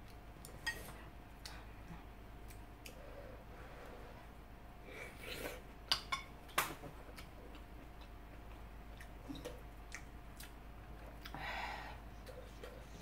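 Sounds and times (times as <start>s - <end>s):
person chewing noodles: 7.0s - 11.4s, 12.0s - 13.0s.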